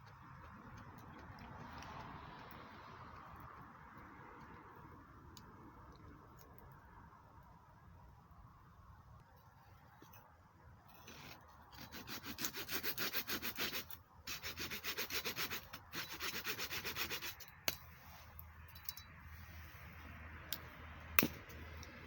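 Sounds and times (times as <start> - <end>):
fast rubbing strokes: 11.9 - 18.2.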